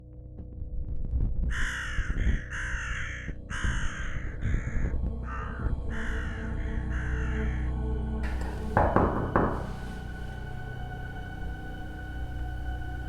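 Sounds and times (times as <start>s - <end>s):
harsh cawing bird calls: 1.5s - 10.3s.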